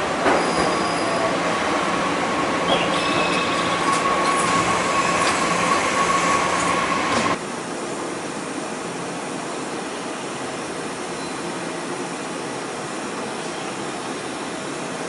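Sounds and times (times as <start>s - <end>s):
electric train rumbling past: 0.0s - 8.3s
hum of standing trains: 0.0s - 15.0s
high-pitched train squeal: 0.2s - 7.4s.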